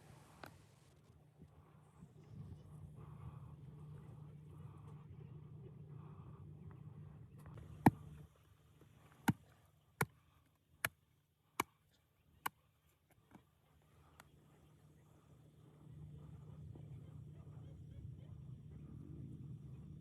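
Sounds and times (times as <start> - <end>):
low hum: 0.0 - 9.3, 14.0 - 20.0.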